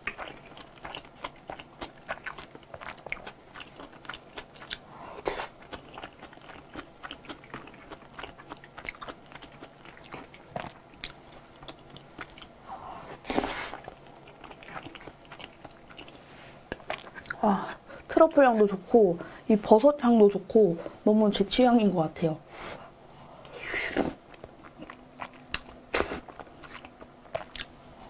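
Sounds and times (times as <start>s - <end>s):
chewing with wet mouth clicks: 0.1s - 4.8s, 5.6s - 12.5s, 13.7s - 17.4s, 24.3s - 27.8s.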